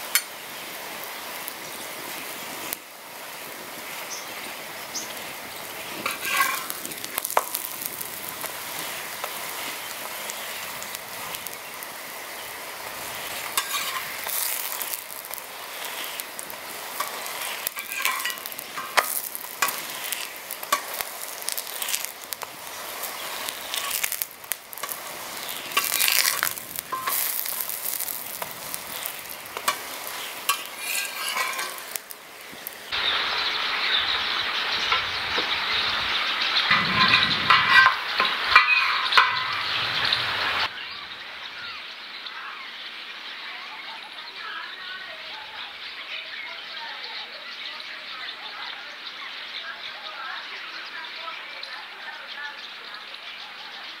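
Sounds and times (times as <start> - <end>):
bread sizzling on griddle: 0.0 - 40.9
metal spatula scraping griddle: 5.1 - 32.8, 36.6 - 40.2.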